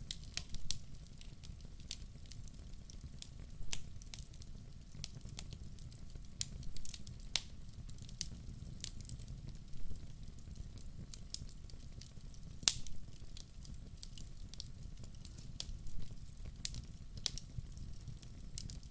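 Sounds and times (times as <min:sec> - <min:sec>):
logs crackling and popping: 0:00.0 - 0:18.9
low rumble of fire flames: 0:00.0 - 0:18.9.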